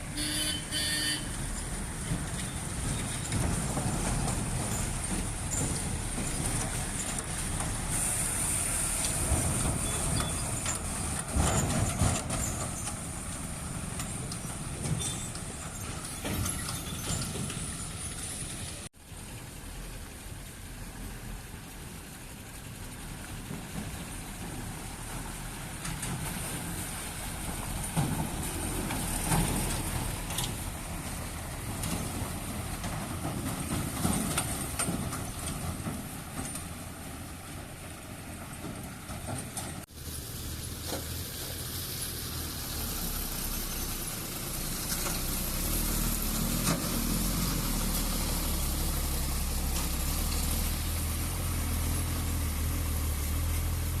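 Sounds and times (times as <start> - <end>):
heavy lorry engine running: 0.0 - 54.0
knocks and rattles: 2.0 - 7.8, 9.2 - 18.0.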